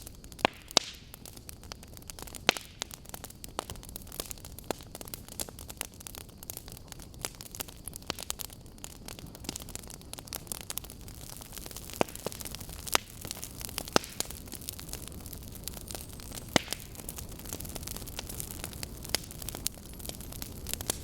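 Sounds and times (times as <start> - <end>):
burning logs crackling: 0.0 - 21.0
fire popping: 0.0 - 21.0.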